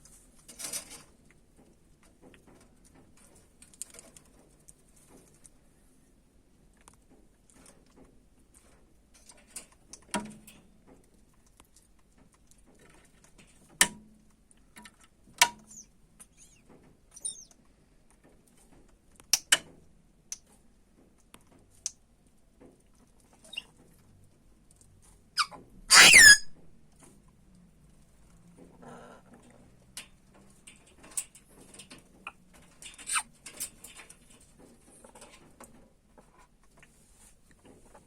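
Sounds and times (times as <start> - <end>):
parrot chirps: 25.4 - 26.5.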